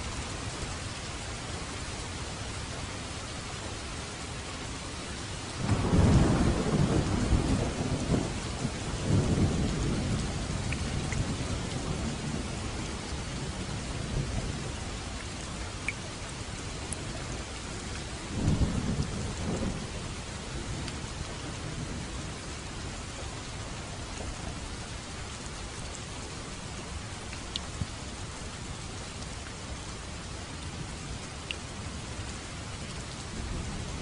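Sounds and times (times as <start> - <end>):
steady rain falling: 0.0 - 34.0
thunder rumbling: 5.6 - 14.9, 17.8 - 22.9.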